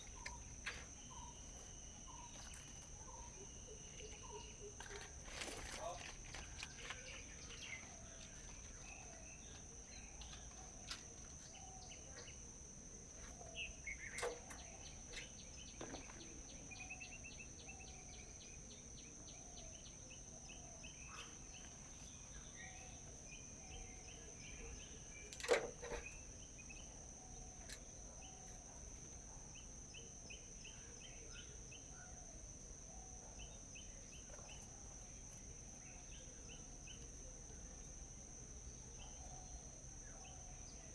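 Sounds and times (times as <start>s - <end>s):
small birds chirping and trilling: 0.0s - 40.9s.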